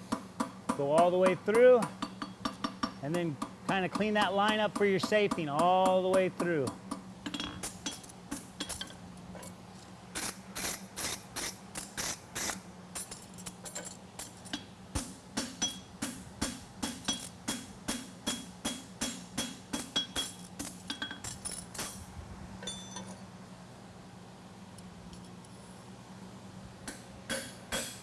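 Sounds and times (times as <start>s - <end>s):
hammer striking horseshoe on anvil: 0.1s - 8.9s, 14.3s - 22.0s, 26.8s - 28.0s.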